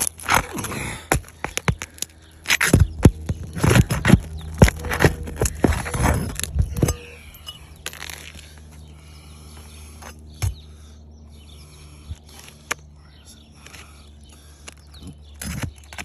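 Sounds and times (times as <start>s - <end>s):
tool scraping roof shingles: 0.0s - 7.1s
birds chirping faintly: 0.4s - 16.0s.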